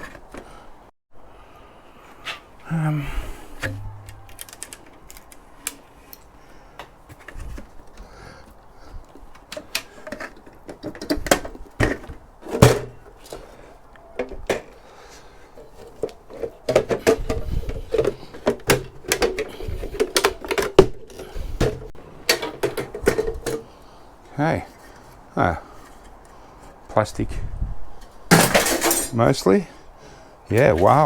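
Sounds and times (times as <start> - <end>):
rattling: 3.6 - 5.4
metal and plastic knocks and cracks: 3.6 - 5.8, 9.2 - 13.5, 15.9 - 23.6.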